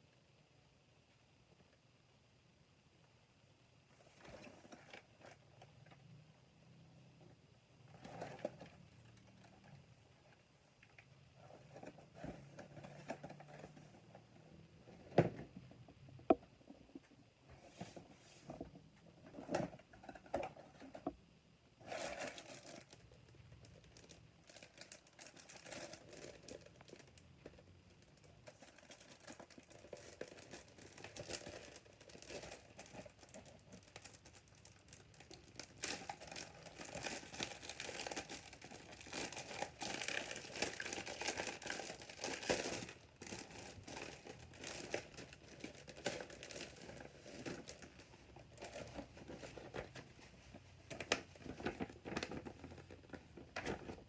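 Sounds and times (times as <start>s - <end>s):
plastic packaging crinkling: 21.8s - 50.1s, 50.8s - 54.0s.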